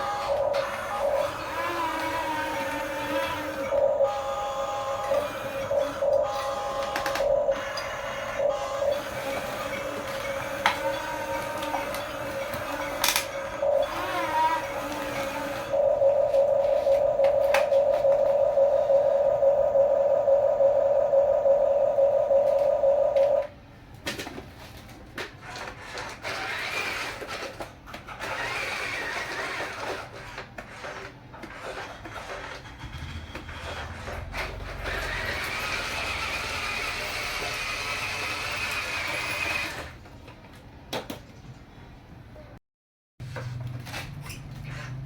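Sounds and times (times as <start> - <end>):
toy motor whirring and grinding: 0.0 - 15.8, 25.4 - 40.0
high electric motor whine: 0.0 - 23.5.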